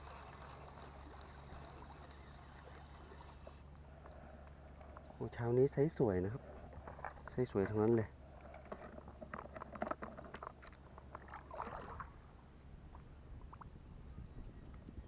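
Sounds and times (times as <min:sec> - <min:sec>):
water sloshing: 0:00.0 - 0:04.2, 0:06.4 - 0:13.7
splashy rustle: 0:10.6 - 0:12.2.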